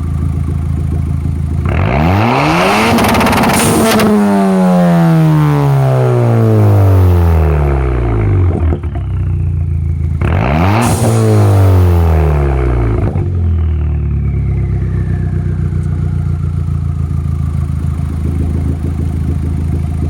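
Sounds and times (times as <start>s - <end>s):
car engine idling: 0.0s - 20.0s
faint whine sliding down in pitch: 11.0s - 16.4s.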